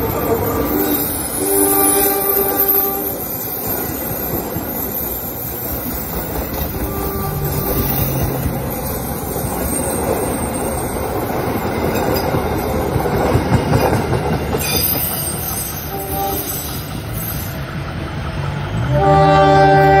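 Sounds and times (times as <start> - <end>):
train wheels rumbling and rattling: 0.0 - 20.0.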